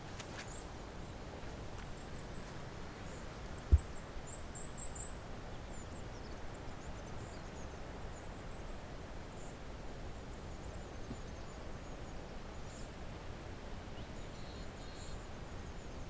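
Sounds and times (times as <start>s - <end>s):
low thump: 3.7s - 4.0s.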